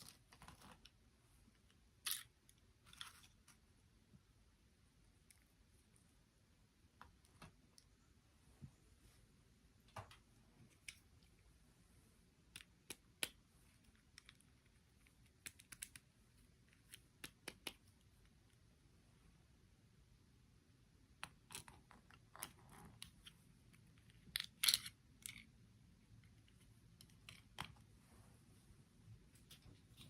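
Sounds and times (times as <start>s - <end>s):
faint small clicks and taps: 6.9s - 8.0s, 12.5s - 18.6s.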